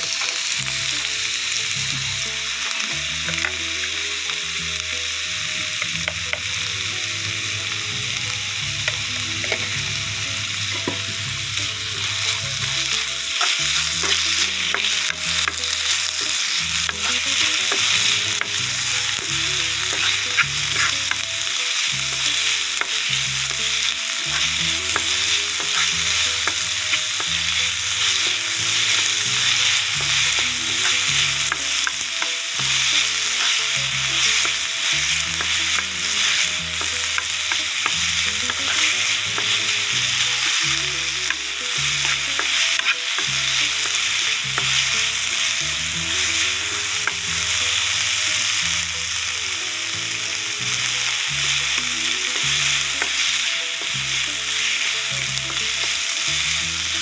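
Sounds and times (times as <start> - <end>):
vegetables sizzling in oil: 0.0 - 57.0
wooden spatula scraping a pan: 5.4 - 48.8.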